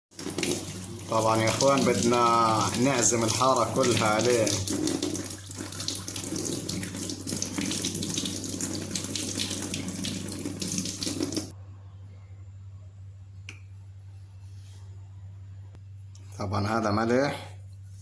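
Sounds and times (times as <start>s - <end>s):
tap water running into sink: 0.1s - 11.5s.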